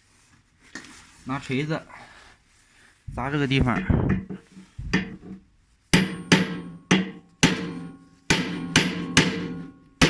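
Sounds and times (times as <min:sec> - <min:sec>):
hammer striking metal: 0:05.9 - 0:10.0.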